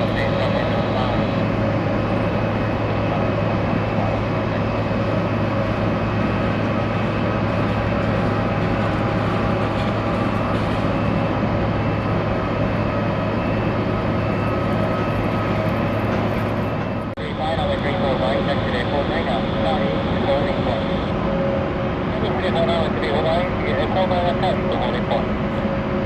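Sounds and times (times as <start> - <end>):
jet engines idling with whine: 0.0 - 26.0.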